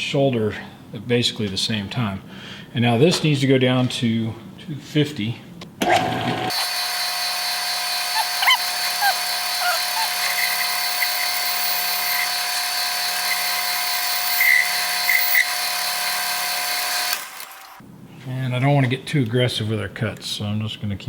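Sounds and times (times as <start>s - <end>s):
metal lathe whining: 6.5s - 17.8s
short squeaks: 7.9s - 12.3s.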